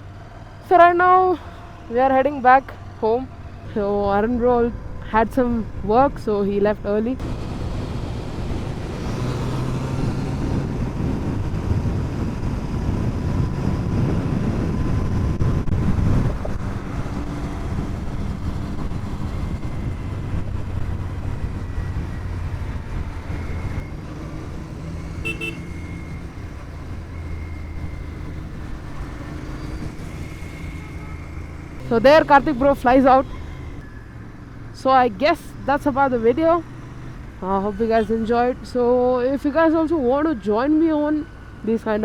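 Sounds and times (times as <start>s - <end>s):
motorcycle running on road: 0.0s - 42.0s
wind noise: 3.5s - 33.9s
horn toot: 25.2s - 26.3s.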